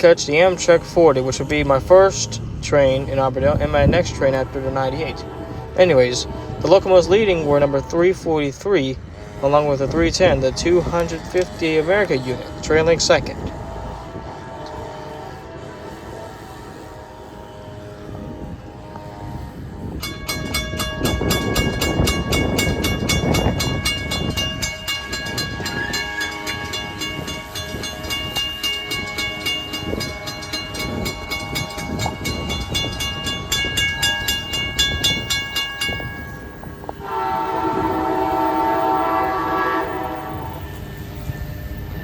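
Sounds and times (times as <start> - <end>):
locomotive multi-tone horn: 0.0 - 42.0
train passing with low rumble: 0.0 - 42.0
fast ringing bell: 20.0 - 38.5.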